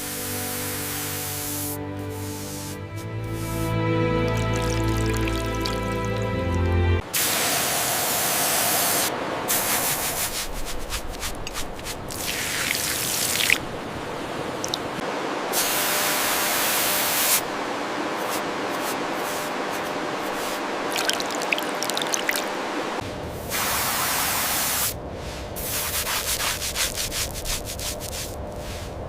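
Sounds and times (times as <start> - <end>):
spray hissing from nozzle: 0.0 - 3.7, 7.2 - 13.4
dripping: 3.2 - 6.8, 11.4 - 15.0, 20.8 - 22.8.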